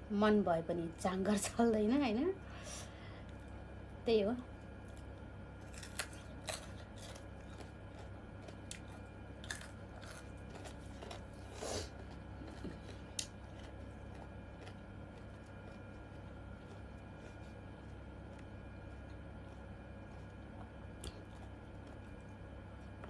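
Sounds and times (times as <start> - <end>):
person chewing: 4.8 - 23.0.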